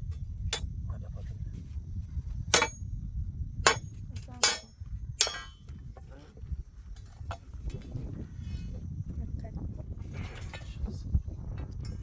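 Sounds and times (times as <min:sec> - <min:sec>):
steady low rumble: 0:00.0 - 0:12.0
sharp metallic knocks: 0:02.5 - 0:03.0, 0:03.6 - 0:05.7.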